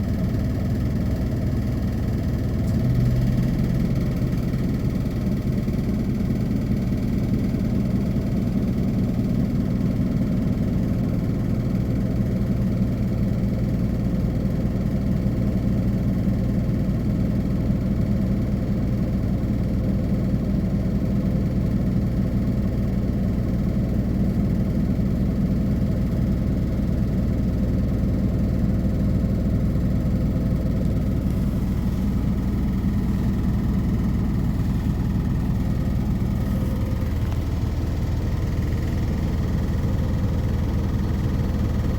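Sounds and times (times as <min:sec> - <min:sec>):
bus diesel engine idling: 0:00.0 - 0:41.9.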